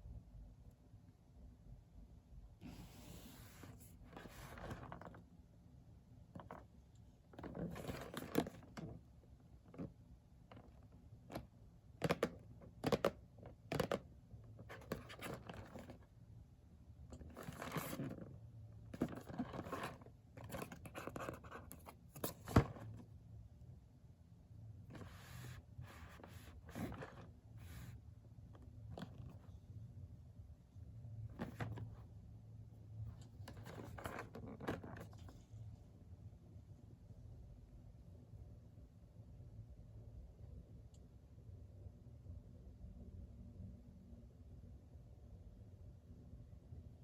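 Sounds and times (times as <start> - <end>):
packaging scratching and scraping: 19.0 - 22.8.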